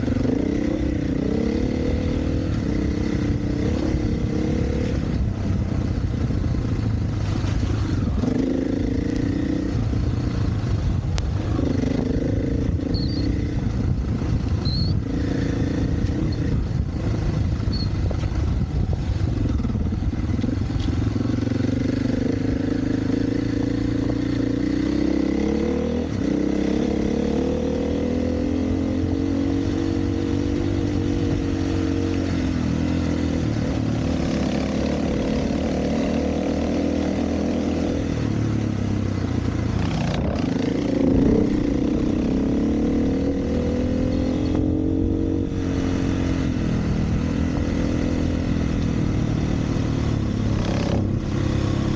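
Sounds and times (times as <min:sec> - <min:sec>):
dirt bike engine revving: 0:39.7 - 0:51.9.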